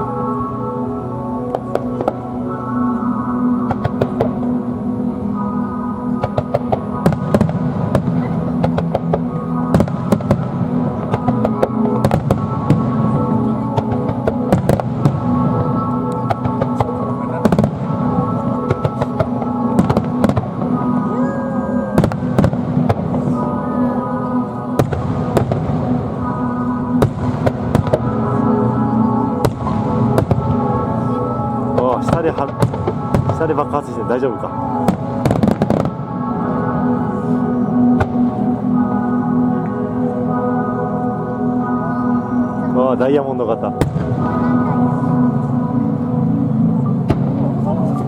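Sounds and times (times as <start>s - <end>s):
sustained music: 0.0s - 48.0s
fireworks bursting: 6.2s - 23.5s, 24.8s - 28.4s, 29.4s - 34.2s, 34.8s - 36.2s.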